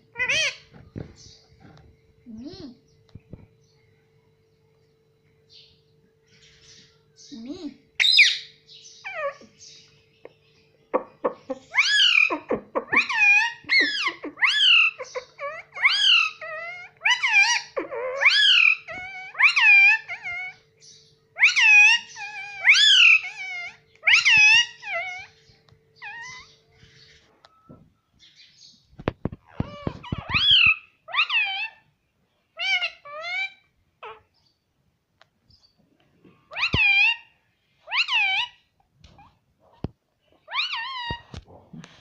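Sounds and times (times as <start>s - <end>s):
parakeet high-pitched calls: 0.1s - 1.4s, 8.0s - 10.0s, 10.9s - 27.3s, 29.5s - 31.9s, 32.5s - 34.5s, 36.5s - 38.7s, 40.5s - 41.2s.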